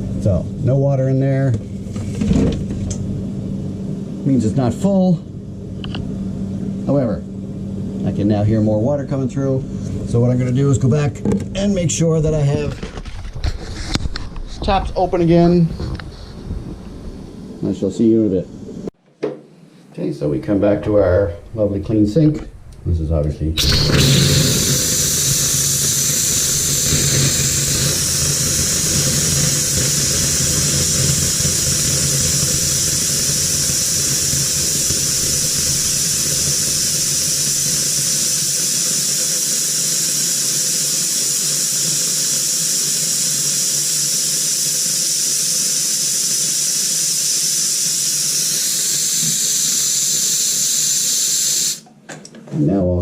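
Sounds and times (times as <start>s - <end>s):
water and air hissing from tap: 23.6s - 51.9s.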